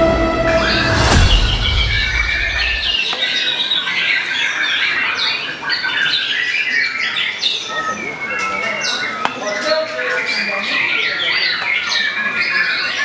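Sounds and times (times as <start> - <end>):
music track: 0.0 - 3.0.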